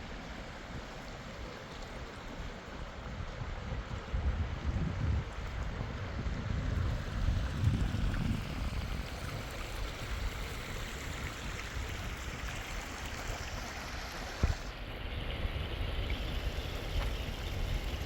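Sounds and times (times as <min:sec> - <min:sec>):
river water rushing: 0:00.0 - 0:03.4.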